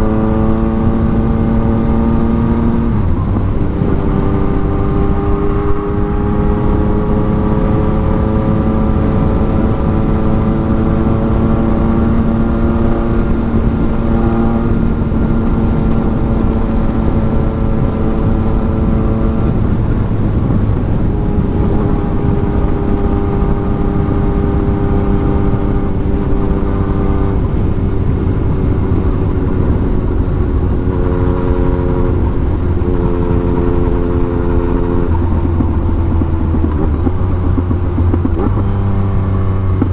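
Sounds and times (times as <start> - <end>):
motorcycle engine revving hard: 0.0 - 39.9
wind rush on microphone: 0.0 - 39.9.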